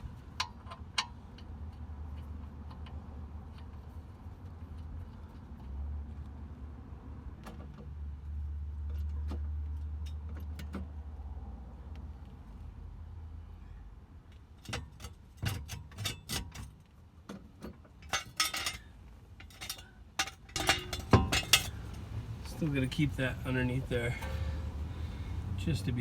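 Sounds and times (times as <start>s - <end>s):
low steady rumble: 18.0s - 26.0s.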